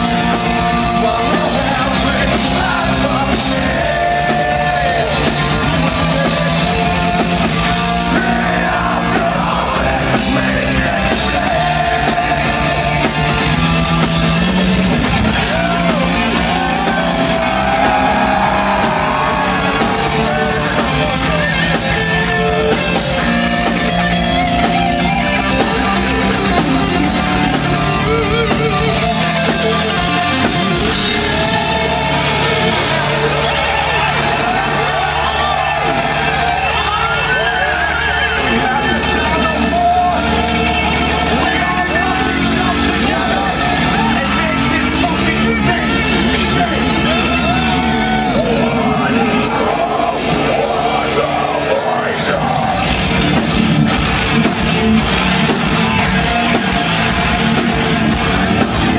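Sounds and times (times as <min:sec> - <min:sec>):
person singing: 0:00.0 - 0:14.0
heavy metal band playing live: 0:00.0 - 0:58.9.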